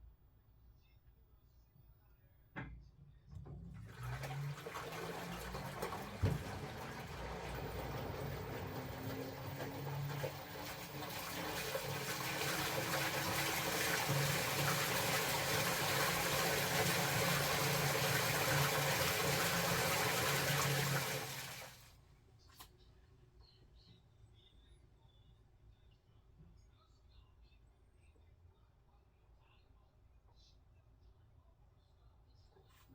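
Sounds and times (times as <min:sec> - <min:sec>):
water rushing into washing machine: 0:03.4 - 0:21.9.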